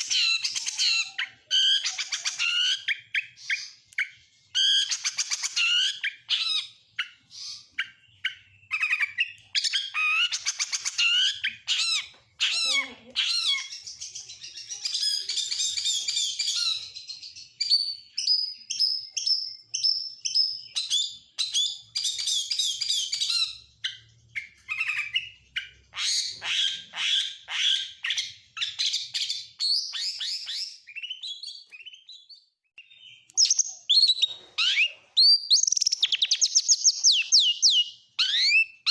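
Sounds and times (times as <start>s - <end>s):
songbird singing varied song: 0.0s - 27.0s, 27.6s - 38.9s.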